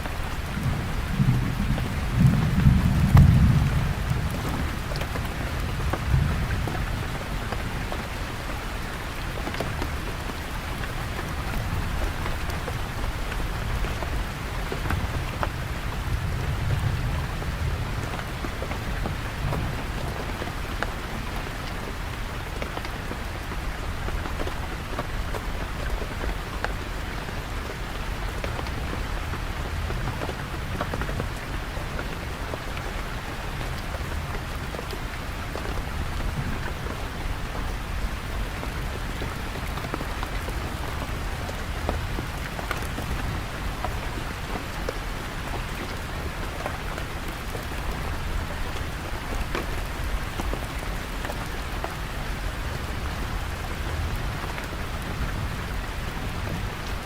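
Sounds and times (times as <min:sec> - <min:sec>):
raindrops ticking: 0:00.0 - 0:57.0
steady rain falling: 0:00.0 - 0:57.0
thunder rumbles: 0:00.1 - 0:07.9.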